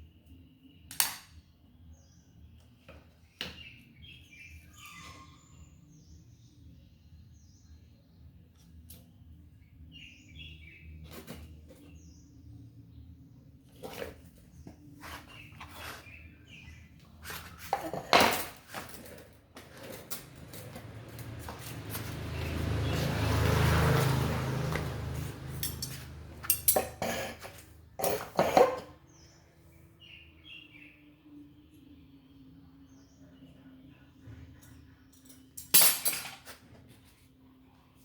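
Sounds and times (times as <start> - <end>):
metal parts clinking: 25.6 - 26.9, 35.1 - 36.6.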